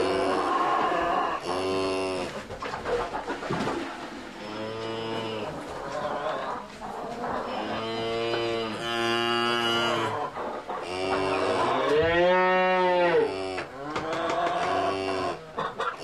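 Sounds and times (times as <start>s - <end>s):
cattle mooing: 0.0s - 2.3s, 7.4s - 10.2s, 10.8s - 15.4s.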